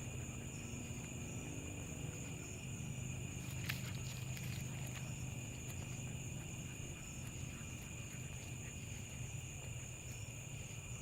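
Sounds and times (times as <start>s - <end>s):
insect chorus trilling: 0.0s - 11.0s
low steady hum: 0.0s - 11.0s.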